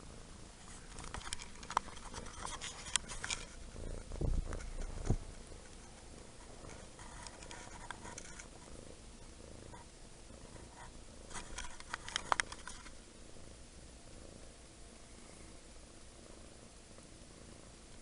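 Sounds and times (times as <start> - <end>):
kitten purring: 0.0 - 18.0
rustling and clicks: 0.6 - 8.7, 9.7 - 13.0.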